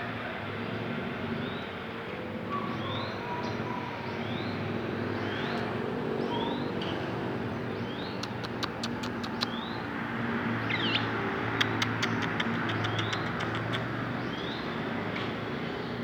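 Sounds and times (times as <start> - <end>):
sharp clicks: 8.2 - 9.6, 11.6 - 13.9
songbird chirping: 10.6 - 14.8.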